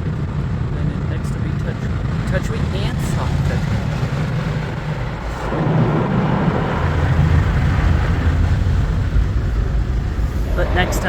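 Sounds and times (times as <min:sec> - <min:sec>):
car wash brushes and water: 0:02.4 - 0:11.0.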